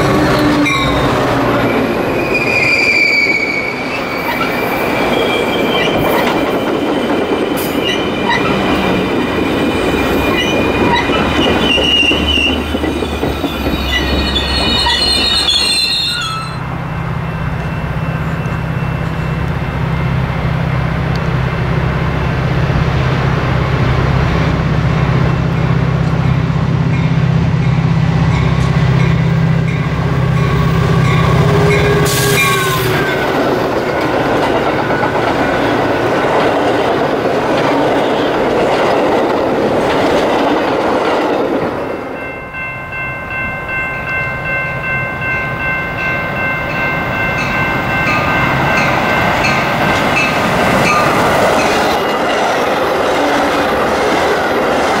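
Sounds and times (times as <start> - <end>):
train wheels clattering on rails: 3.8 - 15.7, 28.2 - 42.2, 46.4 - 55.0
train horn: 30.4 - 33.3.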